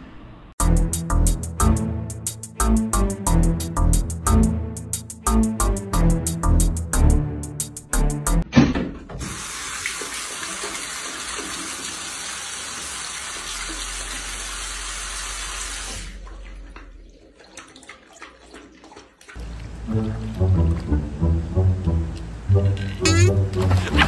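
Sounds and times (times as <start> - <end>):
faucet water running: 9.2 - 21.1.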